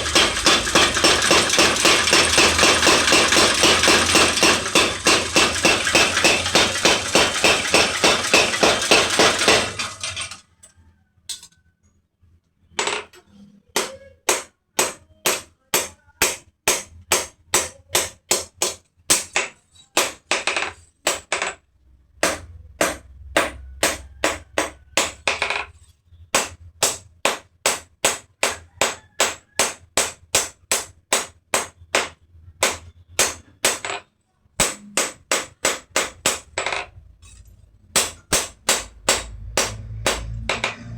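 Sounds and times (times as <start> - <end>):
hammer striking metal on anvil: 0.0 - 10.1, 13.8 - 21.6, 22.2 - 25.6, 26.4 - 34.0, 34.6 - 37.4, 38.0 - 40.9.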